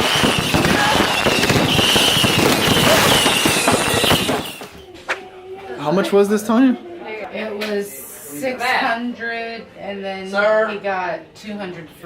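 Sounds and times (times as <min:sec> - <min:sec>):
fireworks cracking and banging: 0:00.0 - 0:04.8.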